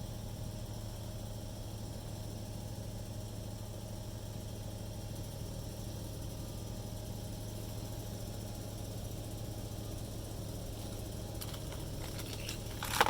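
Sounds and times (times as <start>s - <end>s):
low machine hum with hiss: 0.0s - 13.0s.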